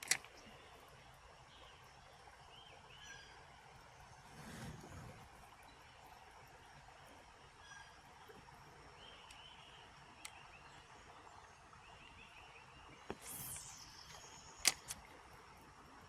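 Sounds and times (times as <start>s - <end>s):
reel clicks: 0.0s - 0.9s, 10.2s - 10.4s, 13.0s - 15.5s
fishing rod swish: 13.1s - 15.0s
fishing line whining off reel: 13.1s - 15.1s.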